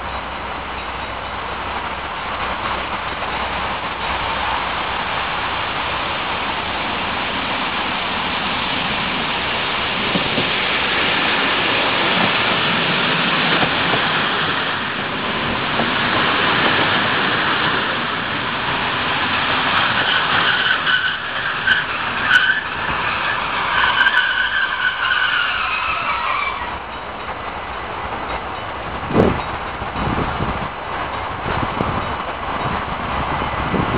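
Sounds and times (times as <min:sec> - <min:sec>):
train rolling and braking: 0:00.0 - 0:33.9
train brakes squealing: 0:09.2 - 0:27.4.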